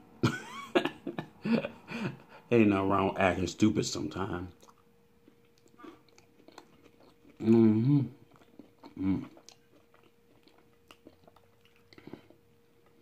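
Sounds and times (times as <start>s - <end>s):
man chewing food: 4.5s - 13.0s
closed-mouth voiced hum: 5.6s - 9.6s.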